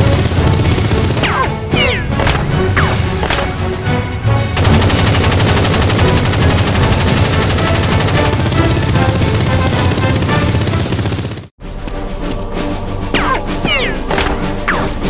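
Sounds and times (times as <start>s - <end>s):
rapid gunfire: 0.0s - 1.6s, 4.6s - 11.5s
action music: 0.0s - 15.0s.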